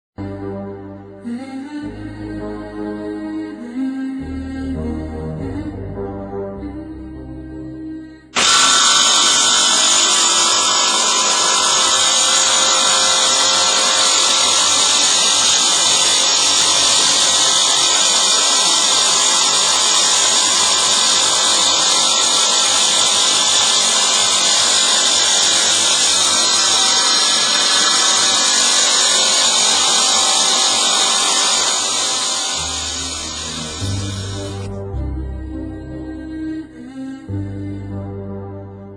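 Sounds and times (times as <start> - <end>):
saw blade high-pitched whine: 8.4 - 34.8.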